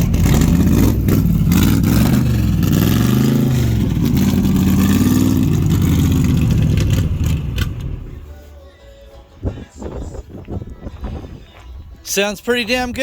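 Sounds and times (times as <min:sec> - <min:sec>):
engine lumpy idle revving: 0:00.0 - 0:08.3
man talking: 0:12.0 - 0:13.0.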